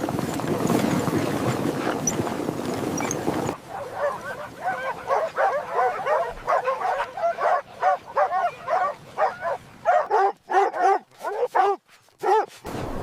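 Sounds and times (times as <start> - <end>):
wind noise: 0.0 - 10.1
dogs barking and yipping: 3.0 - 12.7.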